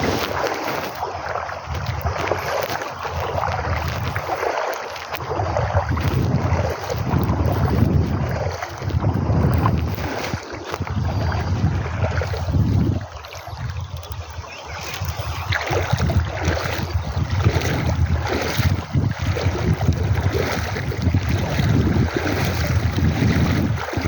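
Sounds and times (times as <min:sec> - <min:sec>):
rushing river water: 0:00.0 - 0:24.0
wind buffeting microphone: 0:00.0 - 0:24.0.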